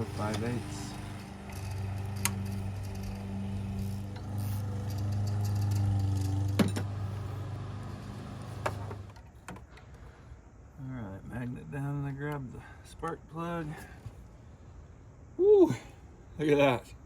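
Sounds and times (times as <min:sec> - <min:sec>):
ratchet clicking: 0:00.0 - 0:06.9
steady low hum: 0:00.0 - 0:17.0.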